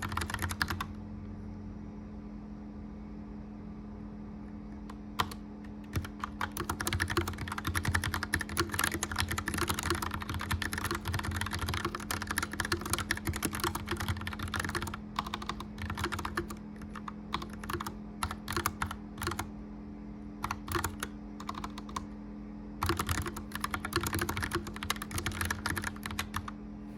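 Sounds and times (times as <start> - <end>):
mechanical keyboard typing: 0.0 - 1.0, 4.9 - 19.5, 20.4 - 22.1, 22.8 - 26.6
fireplace fan hum: 0.0 - 26.9.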